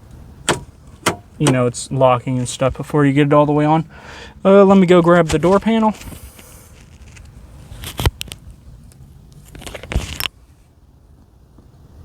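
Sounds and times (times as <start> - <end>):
door panel knocks and clicks: 0.5 - 1.6.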